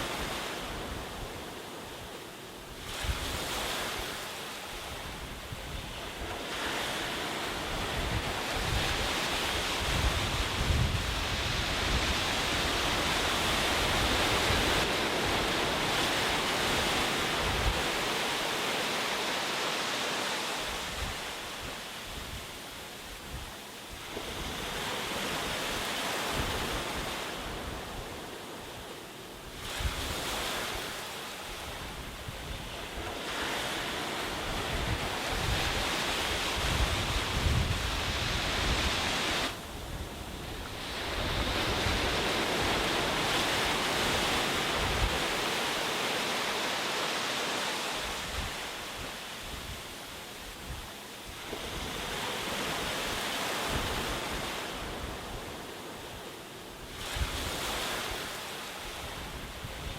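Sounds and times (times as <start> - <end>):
sea waves breaking on beach: 0.0 - 59.9
wind buffeting microphone: 4.8 - 18.4, 31.5 - 45.8.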